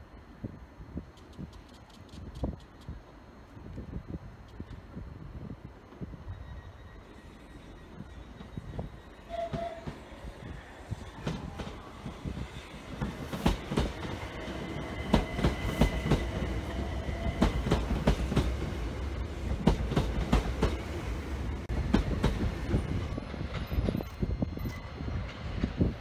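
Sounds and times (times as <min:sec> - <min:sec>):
low train rumble: 0:00.0 - 0:26.0
faint high steady tone: 0:06.0 - 0:12.8
train wheels clattering over rails: 0:11.0 - 0:26.0.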